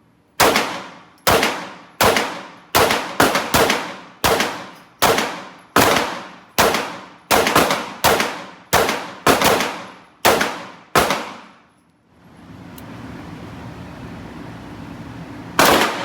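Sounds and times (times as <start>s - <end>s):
gunshots with echo: 0.4s - 11.5s, 15.6s - 16.0s.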